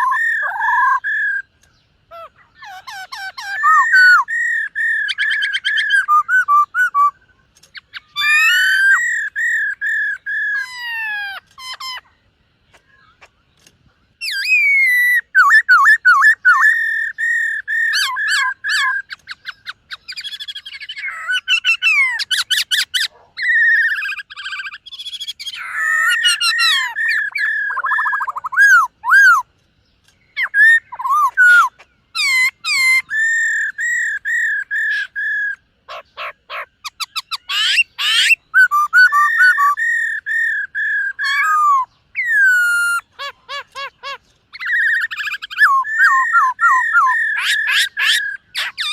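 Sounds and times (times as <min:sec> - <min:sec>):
bird singing varied song: 0:00.0 - 0:48.9.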